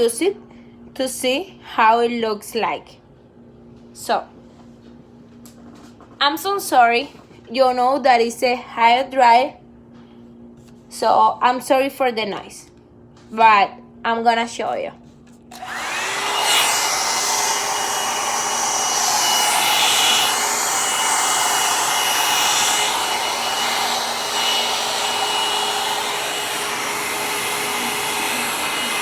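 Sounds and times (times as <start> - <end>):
hair dryer running: 15.5 - 29.0
hair dryer whine: 15.5 - 29.0.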